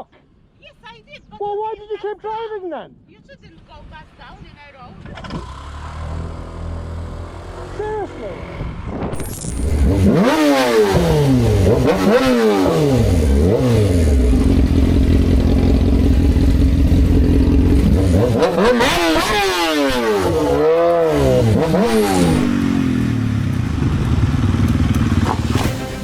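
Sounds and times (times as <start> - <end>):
motorcycle engine revving: 5.0 - 26.0.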